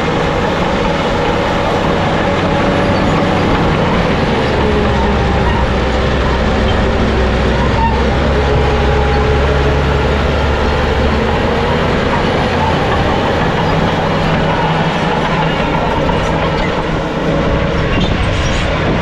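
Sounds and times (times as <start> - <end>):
diesel engine running under load: 0.0 - 19.0
steel tracks clattering: 0.0 - 19.0.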